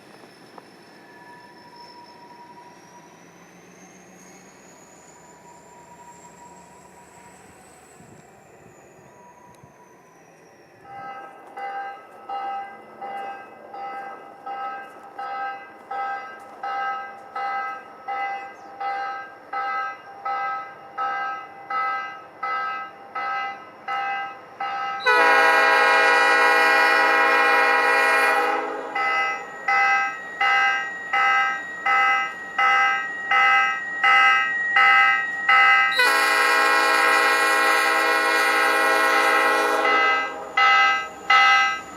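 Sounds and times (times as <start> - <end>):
railroad bell ringing: 0.9 - 41.9
locomotive air horn blast: 25.0 - 30.7, 35.8 - 41.6.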